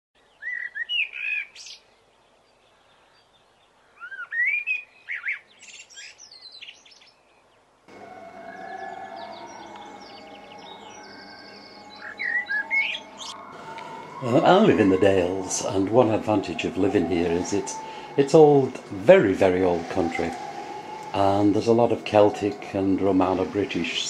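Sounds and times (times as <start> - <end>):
songbirds chirping: 0.2 - 24.0
steady background hum: 7.9 - 24.0.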